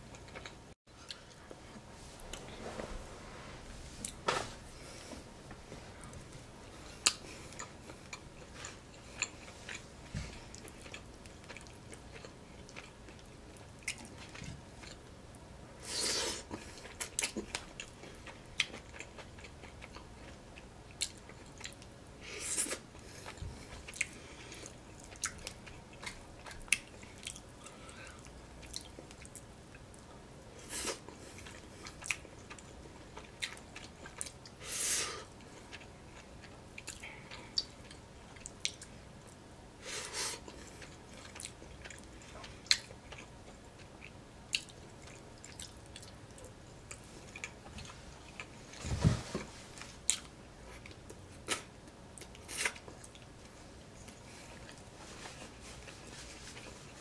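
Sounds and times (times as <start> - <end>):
person chewing food: 0.1 - 1.5, 6.0 - 15.1, 15.8 - 34.6, 35.2 - 48.8, 49.7 - 57.0.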